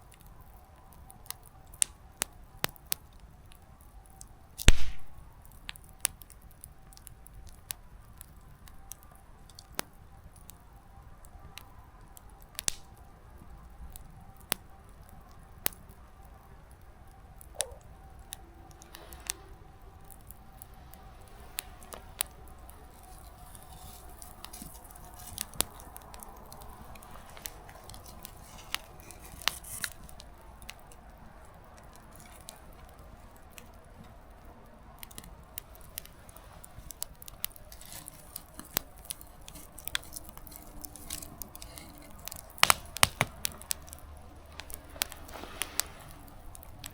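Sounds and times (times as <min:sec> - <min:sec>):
firewood crackling and popping: 0:00.0 - 0:46.9
fire hissing: 0:14.9 - 0:46.9.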